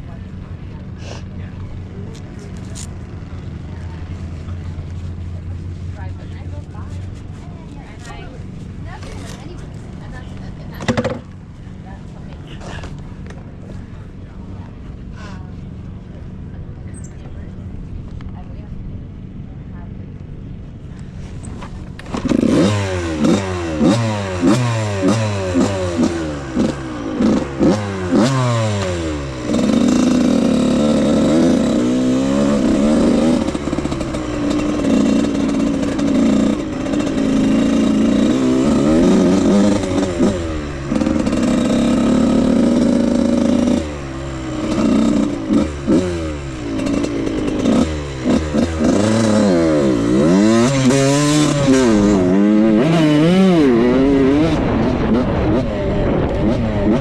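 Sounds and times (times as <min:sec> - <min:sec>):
dirt bike engine revving: 0:21.5 - 0:57.0.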